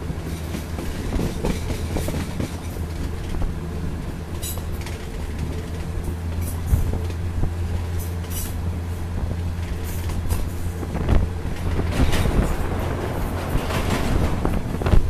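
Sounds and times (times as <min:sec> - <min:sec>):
rushing air: 0:09.9 - 0:15.0
wheel knocks over rail joints: 0:11.5 - 0:15.0.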